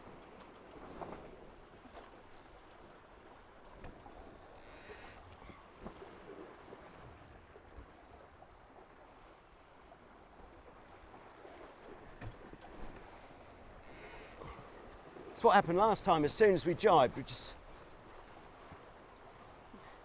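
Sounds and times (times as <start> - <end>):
water rushing past hulls: 10.1 - 20.0.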